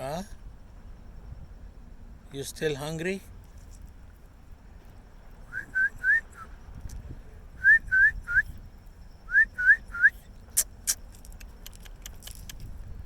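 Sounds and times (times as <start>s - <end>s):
person whistling: 5.5s - 6.5s, 7.6s - 8.6s, 9.3s - 10.3s
sharp clicks: 10.5s - 12.7s.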